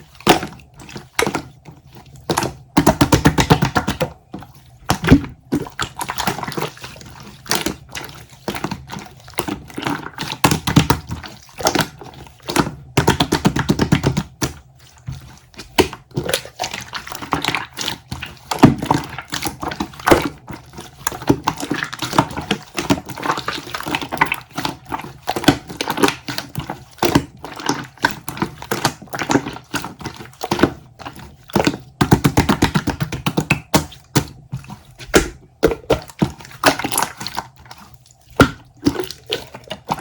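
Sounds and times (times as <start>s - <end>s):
slime squelching wet clicks: 15.5s - 40.0s.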